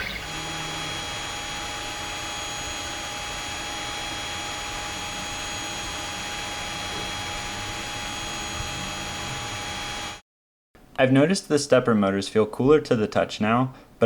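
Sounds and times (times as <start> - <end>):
high-pitched whining tones: 0.0 - 1.4.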